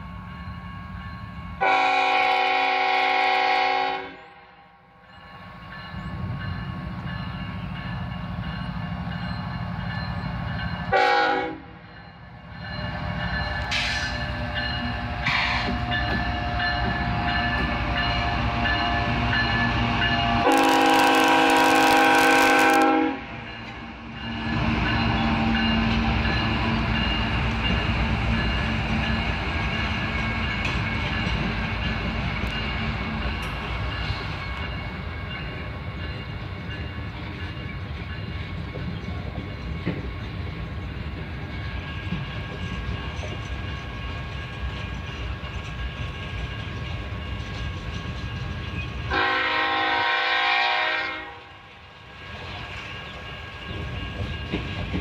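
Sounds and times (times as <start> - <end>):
trailers rumbling and clicking on rails: 0.0 - 55.0
locomotive horn blast: 1.6 - 4.6, 10.9 - 11.8, 20.2 - 23.4, 49.1 - 51.6
diesel locomotive engine running: 5.3 - 55.0.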